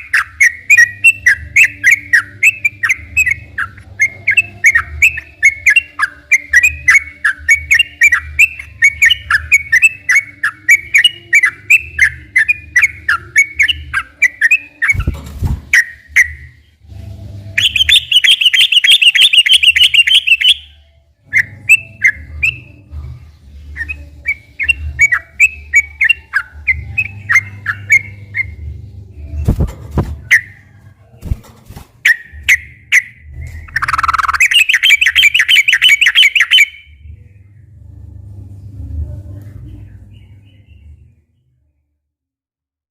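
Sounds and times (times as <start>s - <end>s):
low hum: 6.6s - 18.1s, 20.7s - 35.4s, 36.4s - 41.8s
bird harsh rapid chatter: 32.1s - 36.8s.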